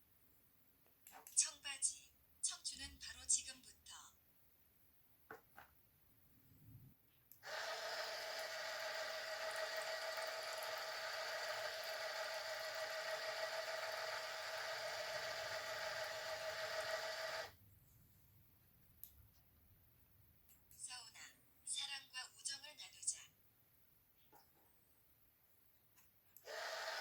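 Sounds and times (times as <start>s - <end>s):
small electric pump whirring: 7.4s - 17.6s, 26.4s - 27.0s.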